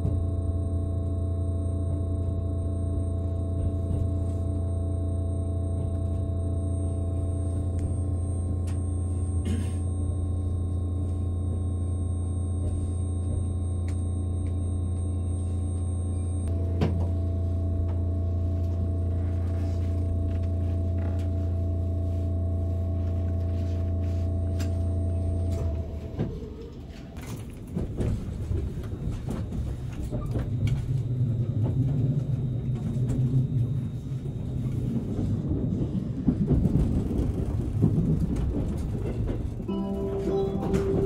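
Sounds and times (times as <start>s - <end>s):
low train hum: 0.0s - 41.0s
train rolling rumble: 16.4s - 41.0s.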